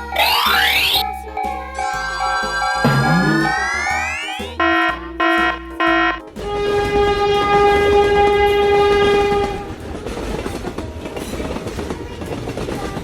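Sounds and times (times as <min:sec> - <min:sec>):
train rumbling on rails: 0:03.4 - 0:13.0
train horn long note: 0:04.6 - 0:09.8.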